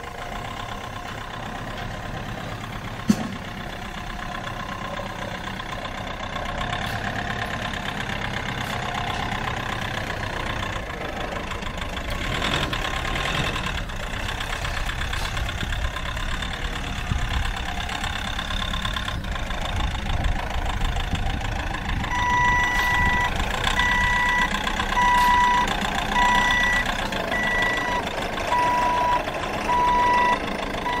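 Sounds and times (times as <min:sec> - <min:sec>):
forklift engine running: 0:00.0 - 0:31.0
reversing alarm beeping: 0:22.0 - 0:31.0.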